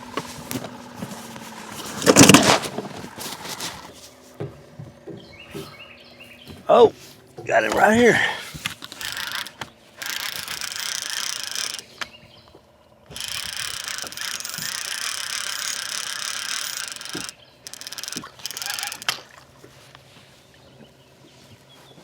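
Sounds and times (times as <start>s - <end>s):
fishing reel clicking whir: 8.6s - 12.2s, 13.0s - 19.4s.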